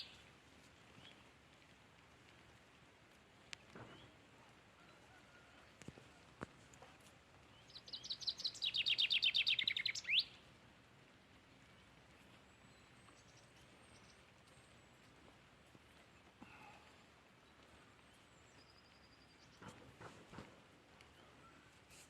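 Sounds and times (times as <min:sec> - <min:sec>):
songbird trill: 0:07.5 - 0:10.5, 0:17.6 - 0:19.8.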